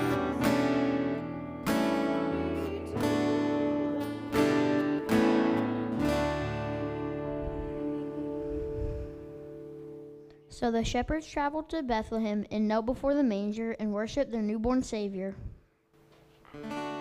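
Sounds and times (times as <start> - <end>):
acoustic guitar strumming chords: 0.0 - 10.5, 16.0 - 17.0.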